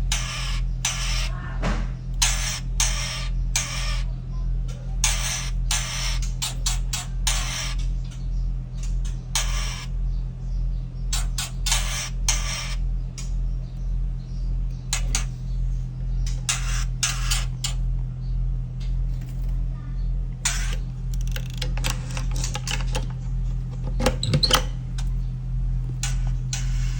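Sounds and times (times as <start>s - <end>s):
bird harsh scolding calls: 0.0s - 1.6s, 2.2s - 4.2s, 5.0s - 7.8s, 9.3s - 10.0s, 11.1s - 17.8s
steady low hum: 0.0s - 26.9s.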